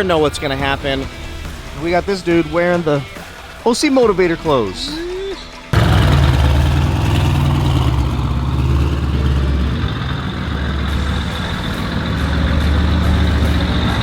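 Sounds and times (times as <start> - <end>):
car engine low rumble: 5.8 - 14.0.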